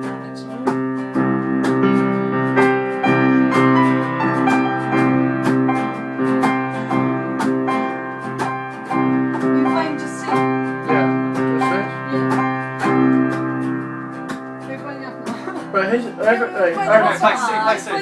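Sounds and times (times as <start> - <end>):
guitar strumming chords: 0.0 - 18.0
keyboard playing held chords: 0.0 - 18.0.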